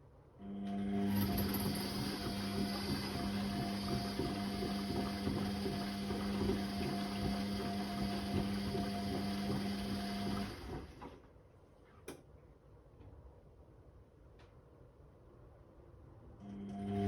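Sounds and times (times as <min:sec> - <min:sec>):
washing machine pump humming: 0:00.4 - 0:11.3, 0:16.4 - 0:17.0.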